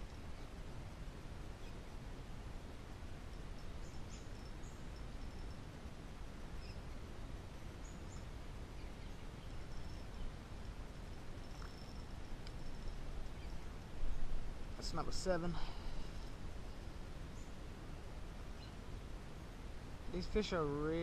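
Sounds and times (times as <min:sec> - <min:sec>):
faint high bird chirps: 0:00.0 - 0:00.6, 0:01.6 - 0:01.8, 0:03.4 - 0:05.7, 0:06.5 - 0:07.1, 0:07.8 - 0:10.4, 0:11.4 - 0:14.4, 0:16.0 - 0:17.6, 0:18.5 - 0:18.8
low outdoor background noise: 0:00.0 - 0:21.0.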